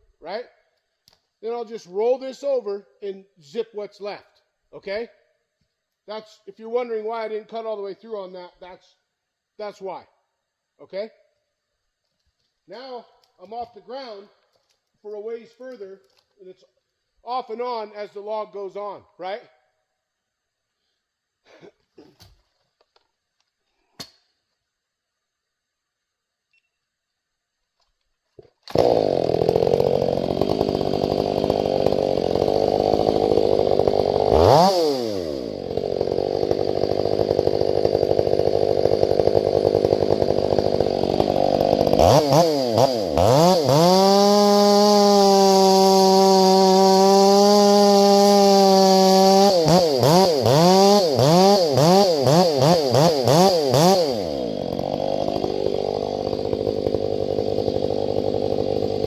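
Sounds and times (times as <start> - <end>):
chainsaw revving: 28.6 - 59.0.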